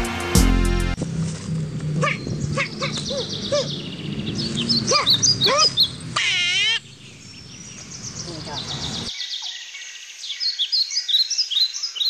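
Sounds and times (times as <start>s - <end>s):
wavering animal call: 2.0s - 3.9s, 4.7s - 6.9s
high bird twittering: 2.0s - 12.0s.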